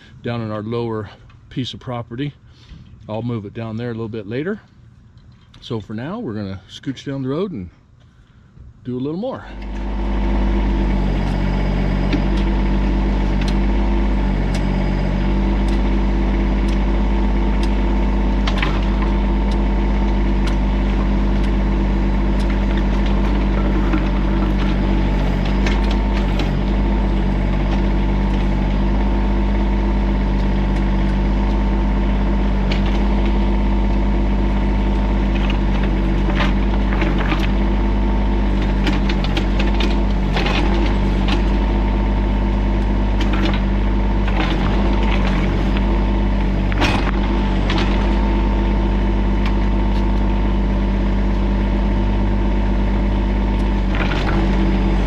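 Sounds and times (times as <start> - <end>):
tractor diesel engine running: 0.0 - 55.0
machine clanks and knocks: 11.1 - 50.2, 53.6 - 55.0.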